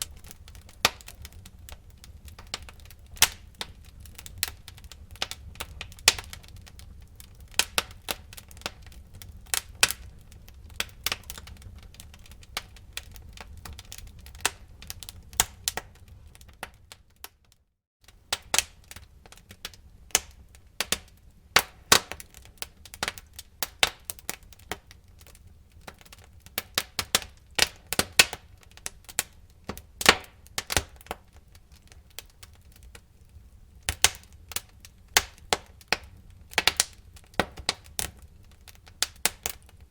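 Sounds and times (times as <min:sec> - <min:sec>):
low rumble of flames: 0:00.0 - 0:17.4, 0:18.0 - 0:39.9
wood fire crackling and popping: 0:00.0 - 0:39.9.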